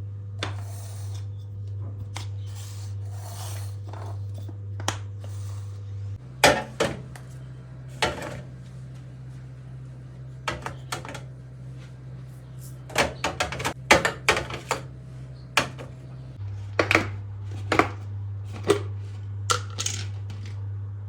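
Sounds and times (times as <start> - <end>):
refrigerator hum: 0.0 - 21.0
jars clinking and knocking: 6.4 - 7.2, 7.9 - 8.5, 10.4 - 11.3, 12.8 - 14.9.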